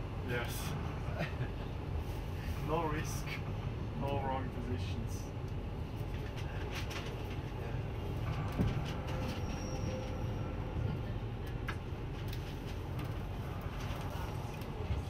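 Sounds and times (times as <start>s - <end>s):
train rumble from inside carriage: 0.0s - 15.0s
faint thin squeal: 9.0s - 10.7s.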